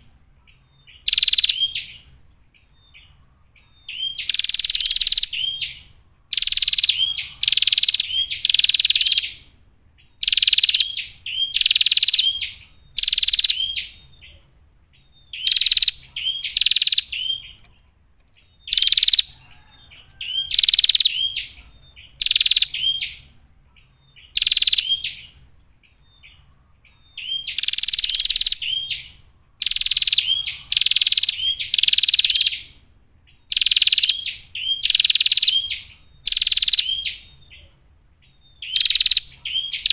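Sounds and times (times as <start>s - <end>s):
bird giving harsh buzzy calls: 10.2s - 14.0s, 15.4s - 17.6s, 20.2s - 23.3s, 24.2s - 25.4s.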